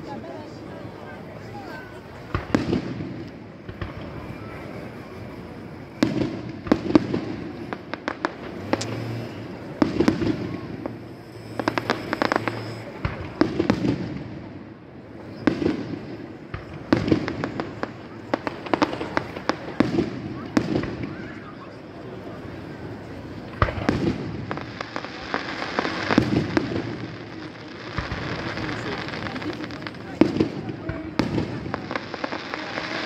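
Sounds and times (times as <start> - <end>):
fireworks bursting with bangs: 1.2 - 33.0
small firework pops: 2.2 - 4.6, 6.0 - 14.2, 15.3 - 21.4, 23.4 - 33.0.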